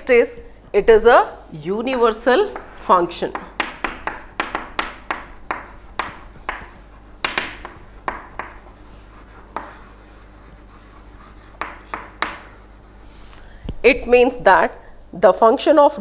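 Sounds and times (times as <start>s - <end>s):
handwriting taps and strokes: 2.0s - 13.0s.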